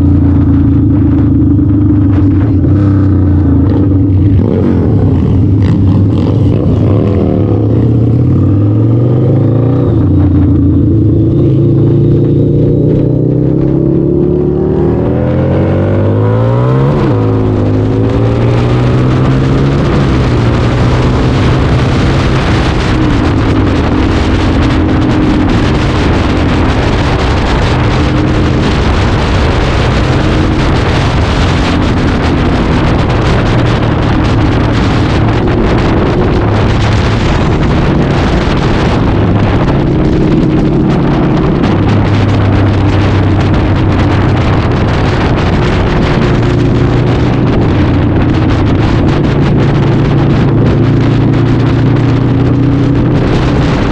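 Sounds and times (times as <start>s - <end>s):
motorcycle engine running: 0.0s - 53.9s
wind noise on microphone: 0.0s - 53.9s.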